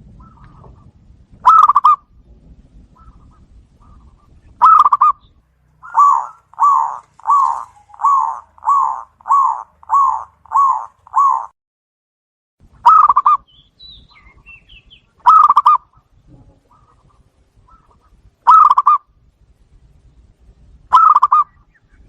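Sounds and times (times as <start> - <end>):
dove cooing: 0.1 - 2.1, 2.9 - 5.2, 5.8 - 11.5, 12.8 - 13.4, 15.2 - 19.1, 20.9 - 21.6.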